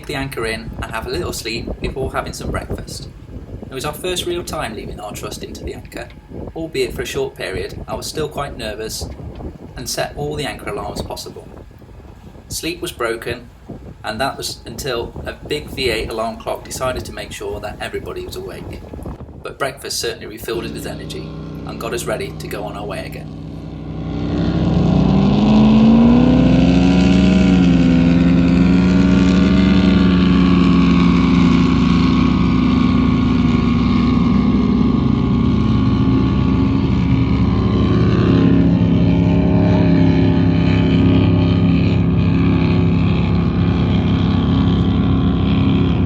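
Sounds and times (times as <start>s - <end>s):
speedboat engine revving: 20.2s - 46.0s.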